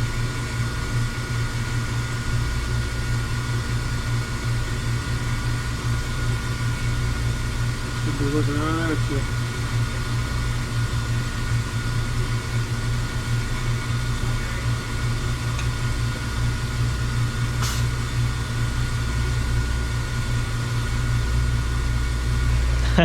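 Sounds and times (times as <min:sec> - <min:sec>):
low machine hum: 0:00.0 - 0:23.0
brief hiss: 0:17.6 - 0:18.0.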